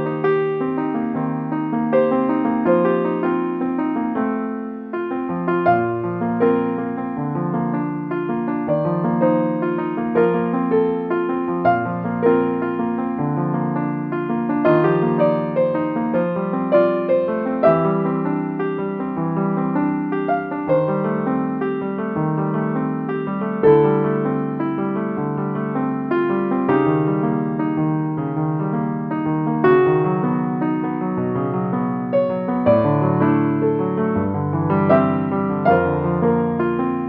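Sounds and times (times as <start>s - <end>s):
slow gentle piano piece: 0.0s - 37.0s.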